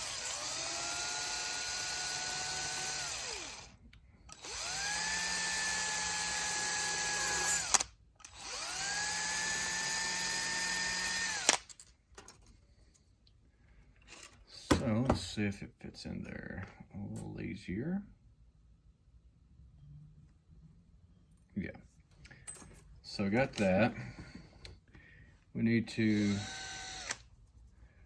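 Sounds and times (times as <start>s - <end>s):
small power drill whining: 0.0s - 11.7s, 14.0s - 14.4s, 26.1s - 27.3s.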